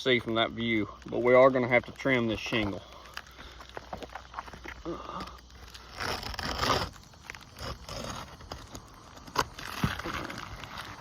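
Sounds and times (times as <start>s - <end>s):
roofing shingle being cut: 2.4s - 11.0s.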